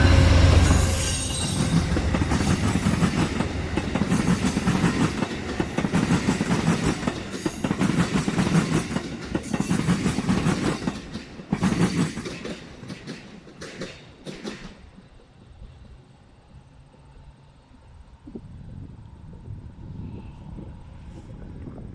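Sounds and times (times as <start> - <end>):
train wheels clicking over rail joints: 0.0 - 17.3
train rumbling: 0.0 - 21.9.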